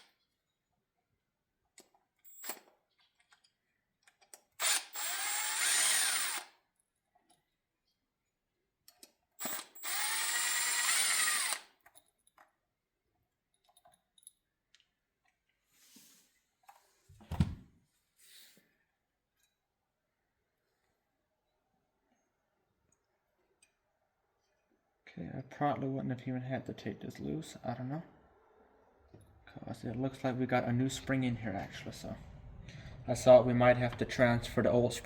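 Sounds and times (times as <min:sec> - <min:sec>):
impact driver whirring: 0:04.6 - 0:06.5, 0:09.4 - 0:11.7
dull thump: 0:17.2 - 0:17.7.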